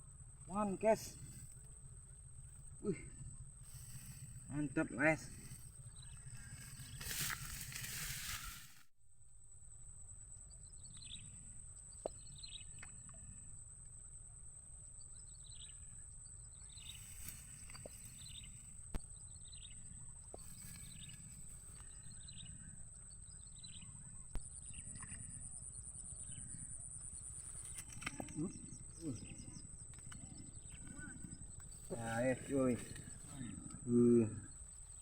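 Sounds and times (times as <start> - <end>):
bird chirping: 26.1 - 35.0.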